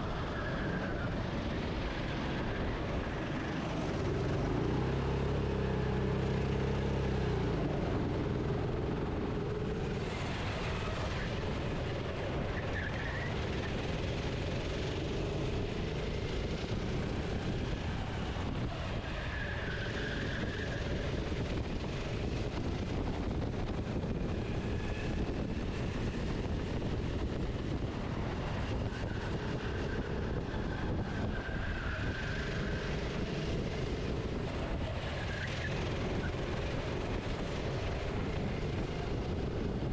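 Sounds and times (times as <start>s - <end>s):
kart engine running: 0.0s - 39.9s
wind: 0.0s - 39.9s.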